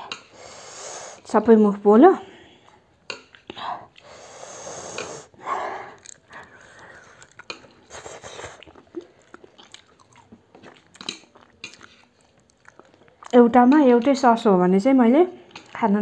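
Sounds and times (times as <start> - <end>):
breathy burst: 4.0 - 7.2
chewing and crunching: 5.3 - 14.2, 15.4 - 15.9.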